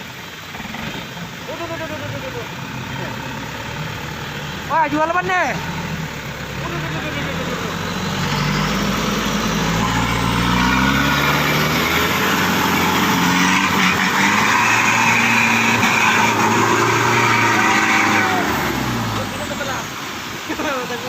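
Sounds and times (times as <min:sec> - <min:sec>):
truck engine revving under load: 0:00.0 - 0:21.0.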